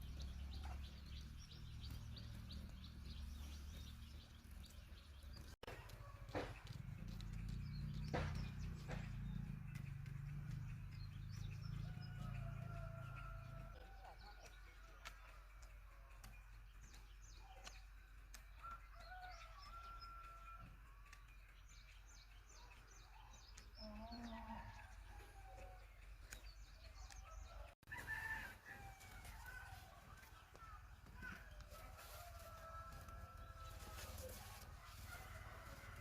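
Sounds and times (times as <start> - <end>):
small birds chirping: 0.0 - 36.0
rooster crowing: 27.4 - 29.8, 31.7 - 36.0.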